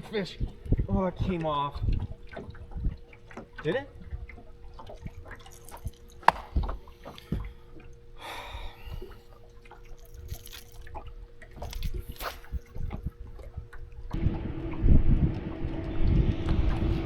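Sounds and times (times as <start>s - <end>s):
small knocks: 6.3s - 6.6s.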